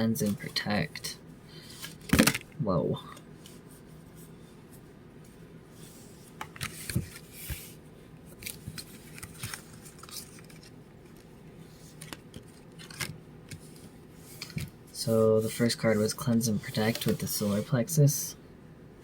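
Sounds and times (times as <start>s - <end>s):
faint steady hum: 0.0s - 19.0s
cards clicking and rustling: 8.4s - 11.3s, 11.9s - 14.8s, 16.2s - 17.6s.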